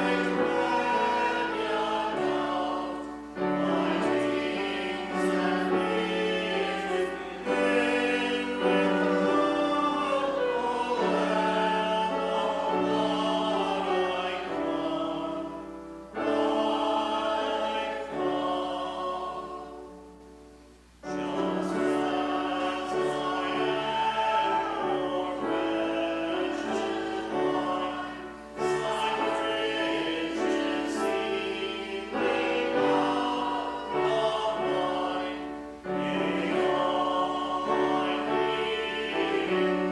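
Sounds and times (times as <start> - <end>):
congregation singing a hymn: 0.0 - 39.9.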